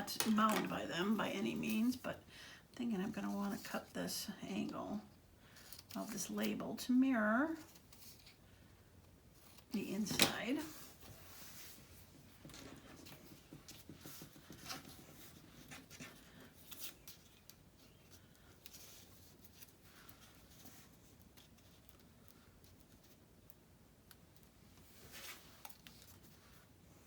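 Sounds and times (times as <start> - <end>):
paper label rustling and scratching: 9.3 - 26.7.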